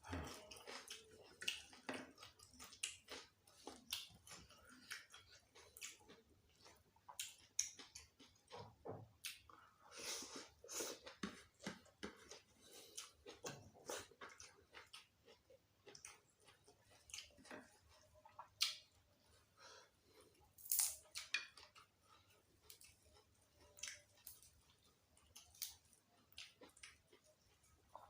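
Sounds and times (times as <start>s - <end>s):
person chewing with wet smacks: 0.0s - 9.8s, 10.4s - 28.0s
food crunching: 20.6s - 28.0s.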